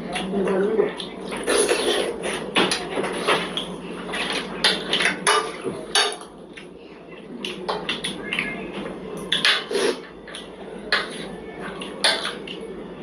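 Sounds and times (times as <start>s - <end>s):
cutlery clinking on plates: 2.6s - 6.3s, 9.3s - 12.6s.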